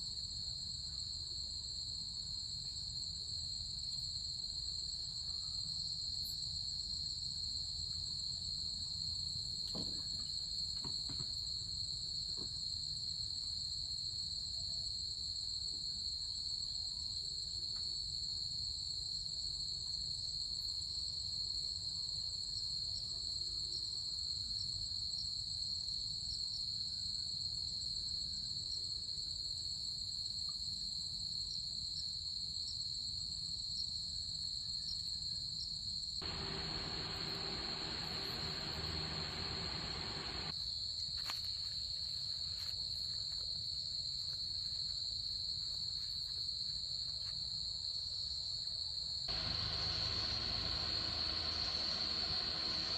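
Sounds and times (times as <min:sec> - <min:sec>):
insects trilling: 0:36.2 - 0:40.5, 0:49.3 - 0:52.9
low steady rumble: 0:36.2 - 0:40.5, 0:49.3 - 0:52.9.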